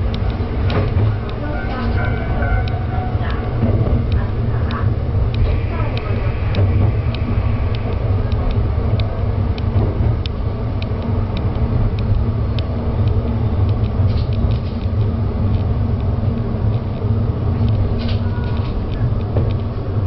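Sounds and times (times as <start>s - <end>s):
railcar rumble: 0.0s - 20.0s
sharp ticks: 0.0s - 20.0s.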